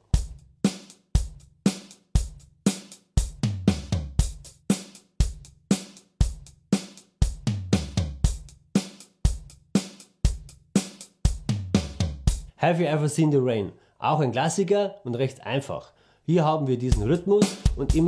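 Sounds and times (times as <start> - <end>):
drum kit groove: 0.0 - 12.6, 16.8 - 18.0.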